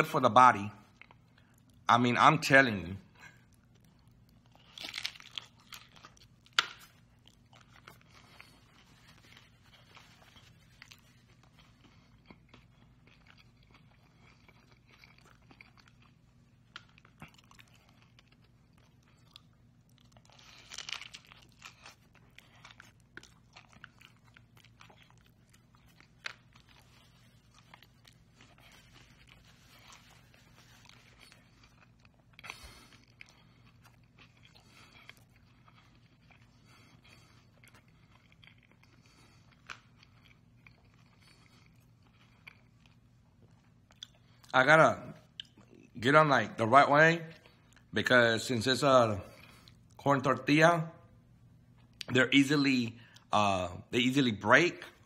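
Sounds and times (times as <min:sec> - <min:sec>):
close-up chewing with crackles: 0:00.8 - 0:01.9, 0:03.1 - 0:44.6, 0:47.3 - 0:48.0, 0:49.3 - 0:50.0
crunchy bite into tostada: 0:03.5 - 0:44.2.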